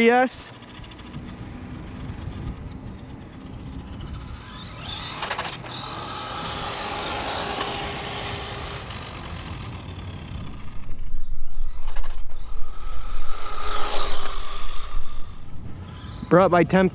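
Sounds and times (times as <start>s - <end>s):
electric motor whine: 10.2s - 16.2s.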